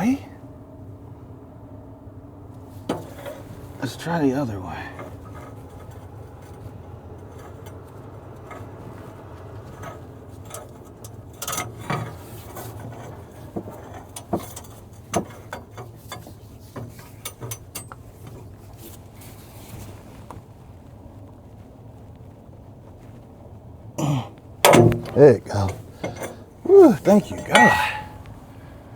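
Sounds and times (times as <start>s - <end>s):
steady low hum: 0.0s - 28.9s
metal clicks and knocks: 2.8s - 3.8s, 4.9s - 18.8s, 24.4s - 28.4s.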